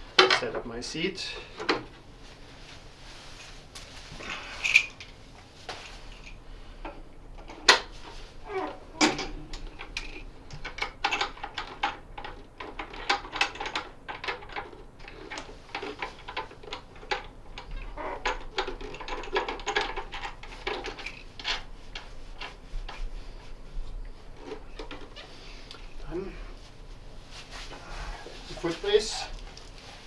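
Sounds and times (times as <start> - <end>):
machine parts clicking and clattering: 9.0 - 22.1.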